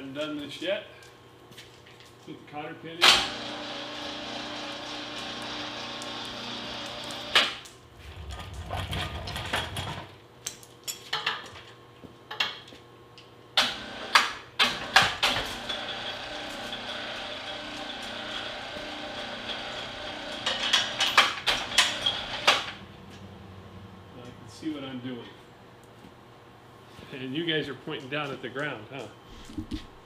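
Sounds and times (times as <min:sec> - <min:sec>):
metal parts clicking and clanking: 0:08.1 - 0:12.7.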